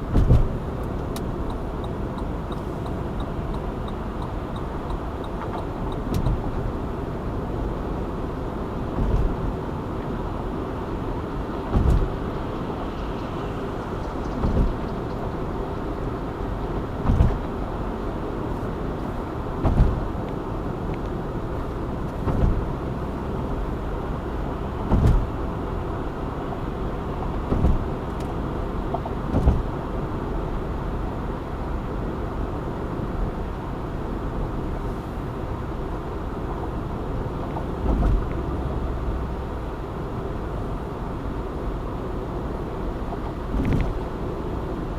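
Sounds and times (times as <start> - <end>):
car road and engine noise: 0.0 - 44.9
short thump: 0.1 - 0.5, 11.7 - 12.1, 14.4 - 14.8, 17.0 - 17.4, 19.6 - 20.0, 22.2 - 22.7, 24.9 - 25.3, 29.3 - 29.7.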